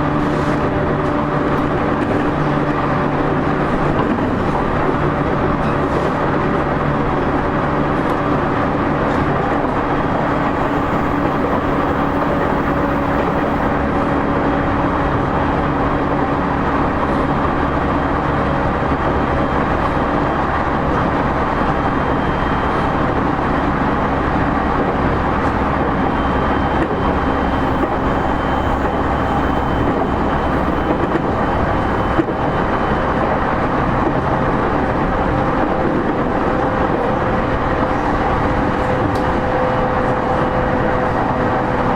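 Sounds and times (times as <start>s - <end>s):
train wheels rumbling on rail: 0.0s - 41.9s
traction motor hum: 10.0s - 13.9s, 27.0s - 32.6s.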